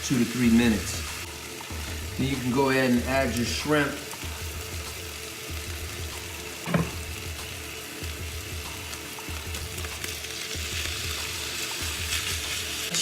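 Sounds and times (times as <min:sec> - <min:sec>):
chicken sizzling in frying pan: 0:00.0 - 0:13.0.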